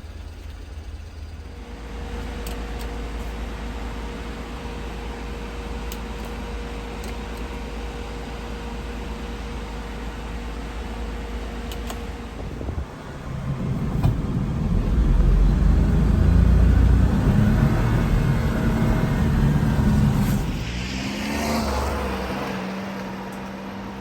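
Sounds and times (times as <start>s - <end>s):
small truck engine running: 0.0s - 24.0s.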